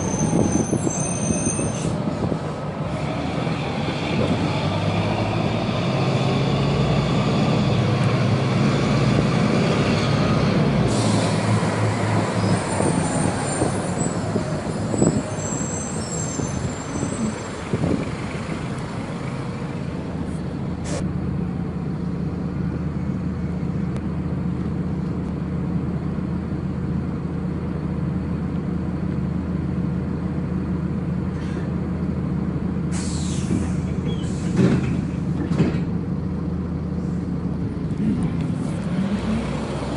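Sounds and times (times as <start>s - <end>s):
brakes squealing: 0.0s - 21.0s, 32.8s - 36.2s
bus diesel engine: 0.0s - 39.9s
air brake hiss: 10.9s - 11.6s, 31.3s - 31.7s, 32.9s - 34.6s.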